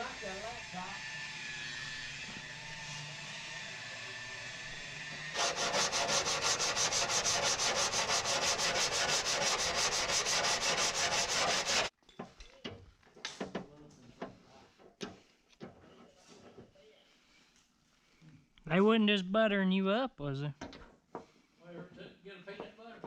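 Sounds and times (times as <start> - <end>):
sanding car body panel: 5.4 - 11.9.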